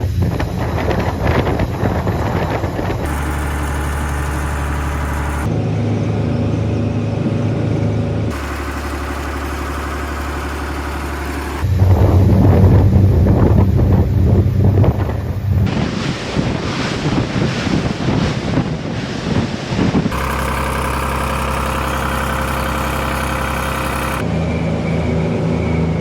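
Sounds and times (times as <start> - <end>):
boat engines idling: 3.0 - 5.5, 8.3 - 11.9, 20.1 - 24.2.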